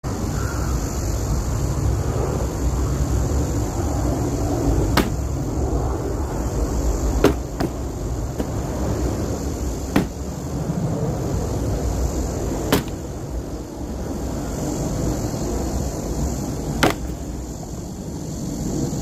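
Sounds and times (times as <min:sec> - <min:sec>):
axe striking wood: 0:05.0 - 0:05.3, 0:07.2 - 0:07.8, 0:08.4 - 0:08.6, 0:09.9 - 0:10.2, 0:12.7 - 0:13.0, 0:16.8 - 0:17.2.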